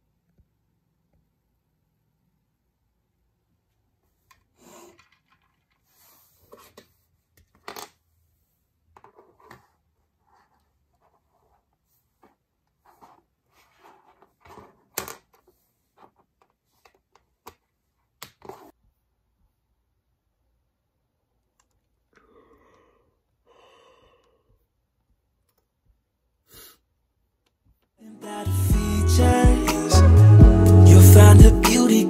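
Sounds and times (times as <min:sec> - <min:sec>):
soft rustle: 0:08.2 - 0:18.8
acoustic pop music: 0:28.0 - 0:32.0.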